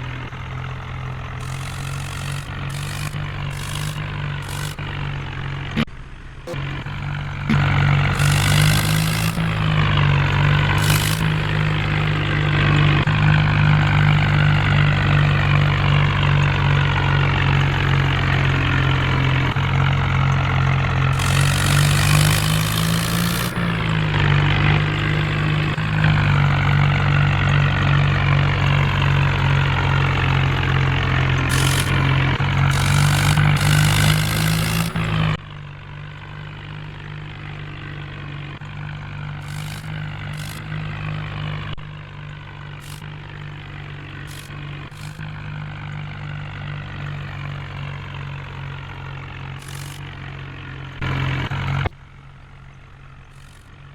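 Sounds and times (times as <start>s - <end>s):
heavy diesel engine running: 0.0s - 53.9s
short bursts of hiss: 1.4s - 4.9s, 7.5s - 9.8s, 10.8s - 12.0s, 21.2s - 23.9s, 31.5s - 35.3s.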